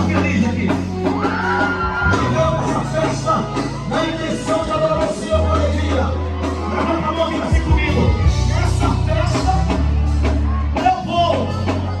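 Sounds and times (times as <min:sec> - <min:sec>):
live band music: 0:00.0 - 0:12.0
sustained bass line: 0:00.0 - 0:12.0.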